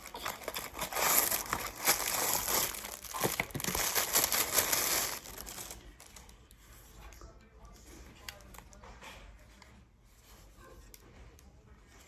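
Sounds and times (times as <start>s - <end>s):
packaging crinkling and rustling: 0.0s - 6.4s.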